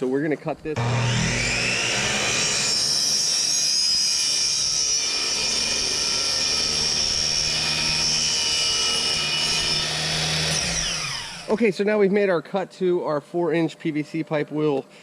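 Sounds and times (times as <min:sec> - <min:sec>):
power saw cutting plastic pipe: 0:00.8 - 0:11.6.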